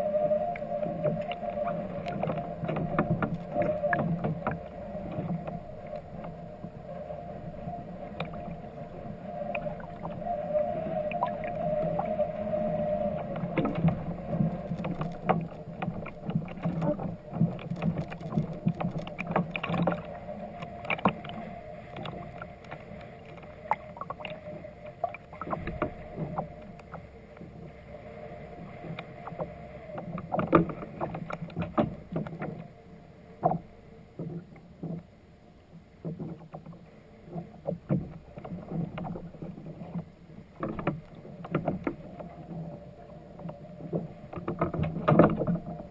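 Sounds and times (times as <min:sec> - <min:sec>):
low steady hum: 0:00.0 - 0:45.9
knocks and clatter on kayak: 0:01.0 - 0:06.4, 0:13.3 - 0:21.4, 0:28.8 - 0:32.6, 0:33.4 - 0:35.1, 0:36.0 - 0:45.9.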